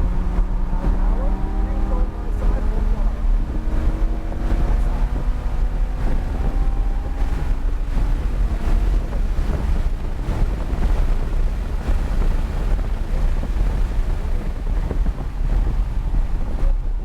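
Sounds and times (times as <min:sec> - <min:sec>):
car engine and road rumble: 0:00.0 - 0:17.0
wind buffeting microphone: 0:00.0 - 0:17.0.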